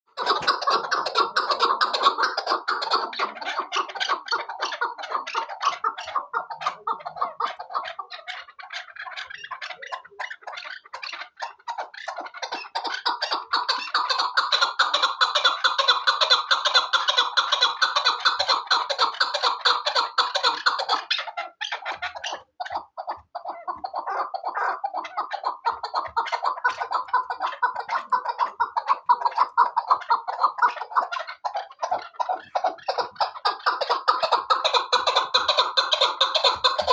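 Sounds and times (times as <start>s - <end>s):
partridge clucking call: 0.1s - 36.9s.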